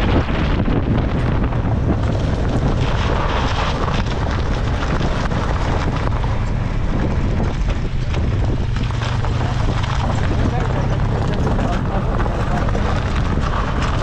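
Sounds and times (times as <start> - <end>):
car engine drone: 0.0 - 14.0
road noise: 0.0 - 14.0
wind buffeting microphone: 0.0 - 14.0.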